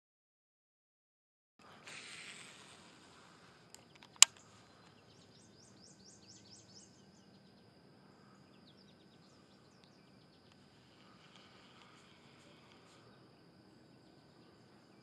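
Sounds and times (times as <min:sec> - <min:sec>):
thin high insect drone: 0:01.6 - 0:15.0
sharp click: 0:03.7 - 0:04.4.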